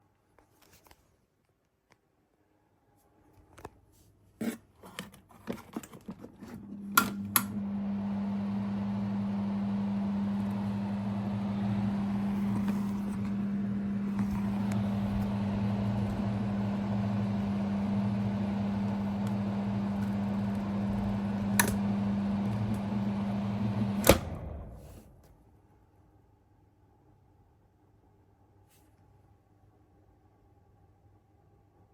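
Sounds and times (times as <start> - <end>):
ventilation fan humming: 6.6 - 25.3
fan winding down: 6.9 - 25.3
fan switch clicks: 21.5 - 21.8, 24.0 - 24.5.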